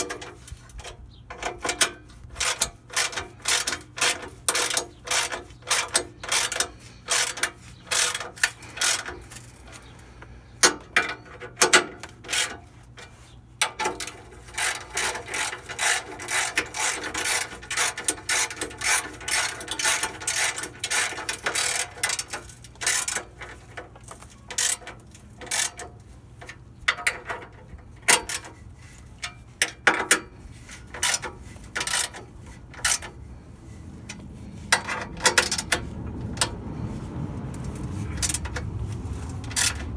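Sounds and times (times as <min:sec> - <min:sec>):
hand ratchet wrench clicking: 0:01.4 - 0:09.4, 0:13.7 - 0:25.9, 0:30.9 - 0:32.2, 0:37.6 - 0:39.9.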